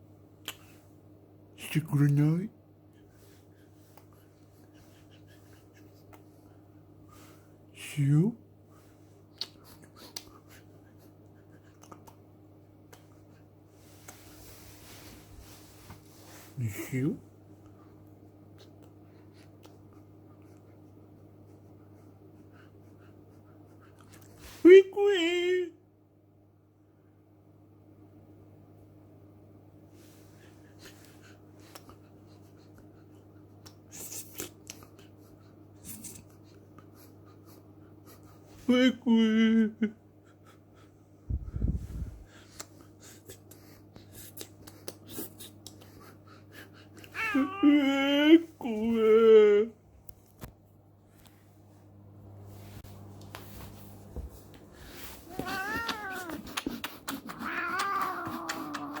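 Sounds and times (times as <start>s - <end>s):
low steady hum: 0.0s - 59.0s
cat yowling: 47.1s - 47.7s, 55.3s - 56.6s, 57.3s - 59.0s.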